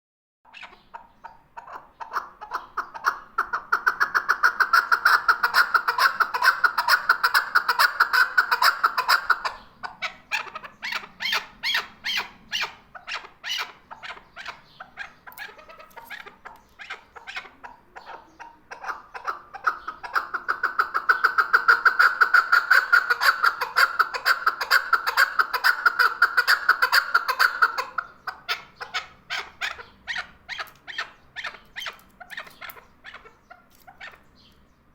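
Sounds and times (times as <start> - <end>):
partridge chuck calls: 0.5 - 34.9.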